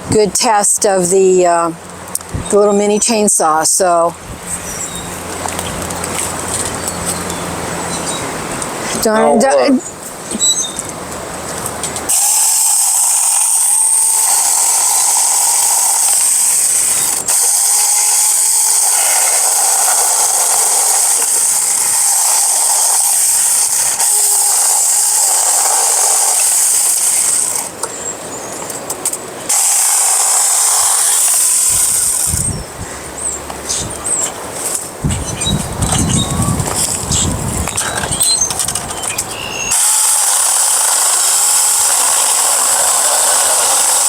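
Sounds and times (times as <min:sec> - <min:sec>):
battery chainsaw whining: 0:12.1 - 0:27.8, 0:29.5 - 0:32.6, 0:37.7 - 0:44.0.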